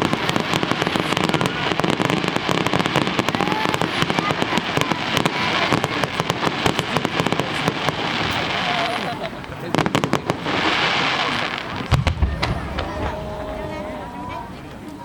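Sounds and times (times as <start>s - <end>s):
fireworks crackling and popping: 0.0s - 13.8s.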